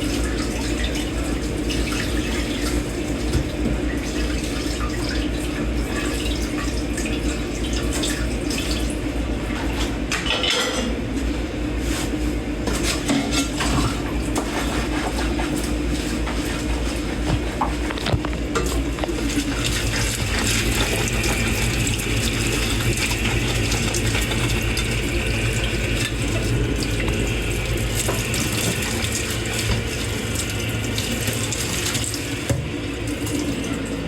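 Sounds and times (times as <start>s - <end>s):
tap water running: 0.0s - 11.0s, 12.6s - 34.0s
dishes and cutlery clinking: 10.1s - 11.0s.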